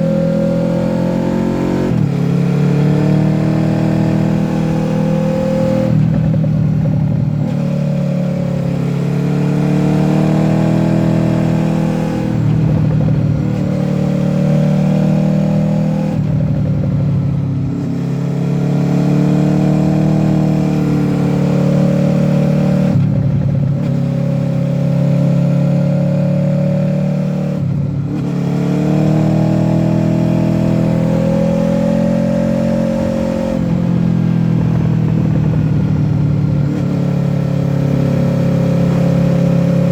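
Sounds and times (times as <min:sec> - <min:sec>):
motorcycle engine accelerating hard: 0:00.0 - 0:39.9.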